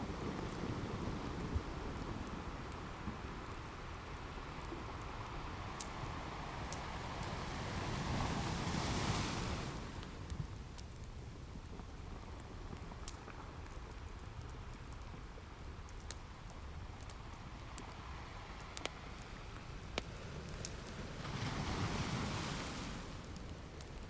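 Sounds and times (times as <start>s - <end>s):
wood fire crackling: 0.0s - 24.0s
ocean surf: 5.4s - 10.1s, 20.1s - 23.6s.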